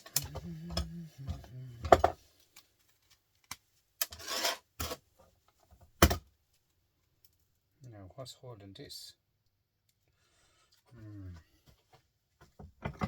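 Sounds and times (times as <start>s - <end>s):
tool scraping metal: 4.0s - 5.0s.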